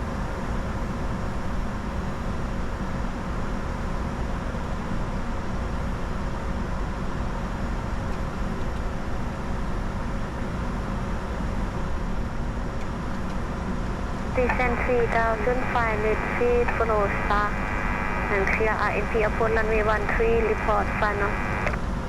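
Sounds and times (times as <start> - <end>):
faint steady whine: 14.0 - 21.8.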